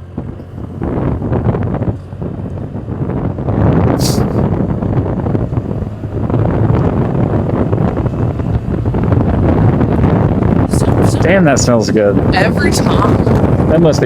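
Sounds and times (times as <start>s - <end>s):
road noise: 0.0s - 14.0s
wind buffeting microphone: 0.0s - 14.0s
brief high hiss: 4.0s - 4.4s.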